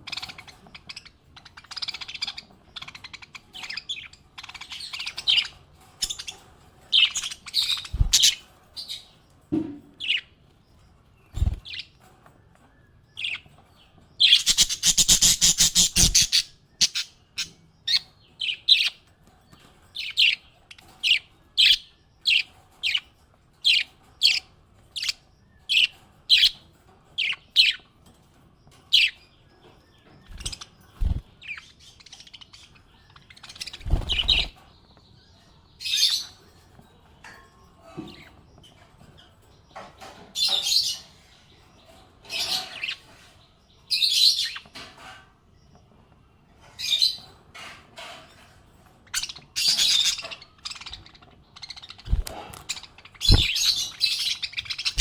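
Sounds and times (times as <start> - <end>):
parrots chirping: 0.0 - 9.1, 14.2 - 19.0, 30.2 - 34.6, 49.0 - 55.0.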